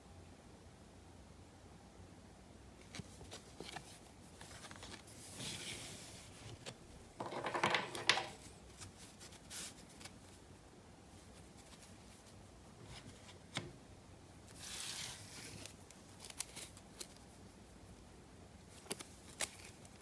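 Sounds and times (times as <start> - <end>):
cards sliding and rustling: 2.8 - 10.2, 14.5 - 17.2.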